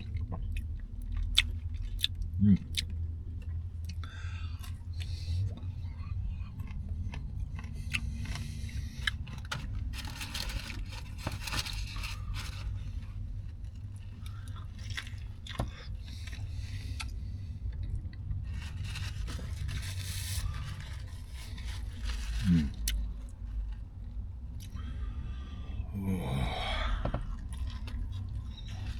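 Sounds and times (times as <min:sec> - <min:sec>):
chewing and crunching sandwich: 0:00.0 - 0:28.9
low steady hum: 0:00.0 - 0:28.9.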